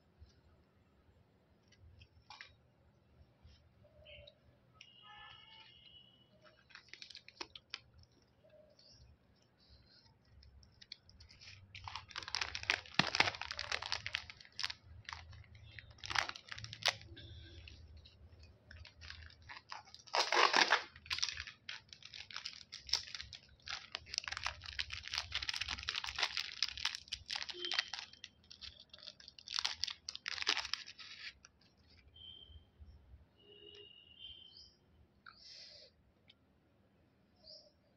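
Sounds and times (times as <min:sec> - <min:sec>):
candy wrappers crinkling and tearing: 0:05.5 - 0:32.0.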